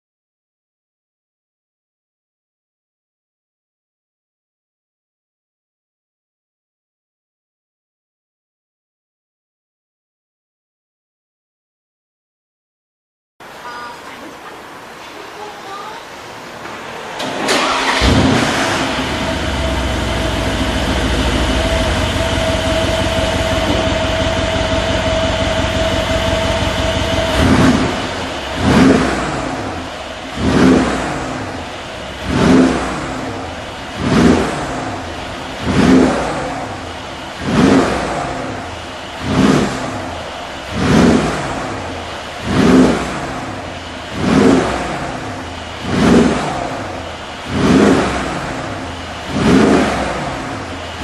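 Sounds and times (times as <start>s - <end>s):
engine starting and idling: 16.6s - 51.0s
engine revving in short blips: 17.0s - 51.0s.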